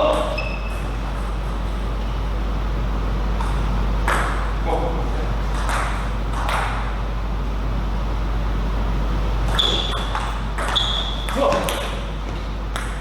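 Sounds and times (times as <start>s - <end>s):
hall background hum: 0.0s - 13.0s
high squeak: 0.2s - 0.8s.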